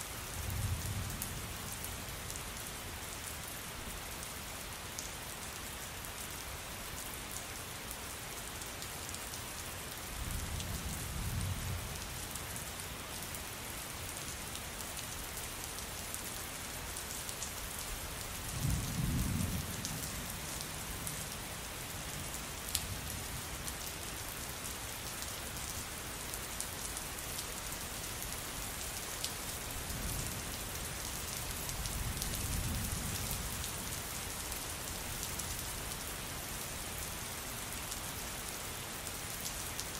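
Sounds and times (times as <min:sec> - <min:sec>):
steady rain falling: 0:00.0 - 0:39.9
raindrops ticking on surface: 0:14.1 - 0:36.8.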